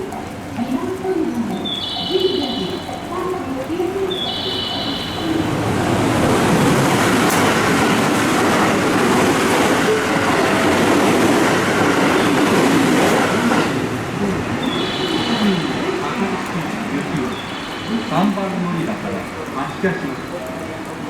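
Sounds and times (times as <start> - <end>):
electric train rumble and rail clatter: 0.0 - 21.0.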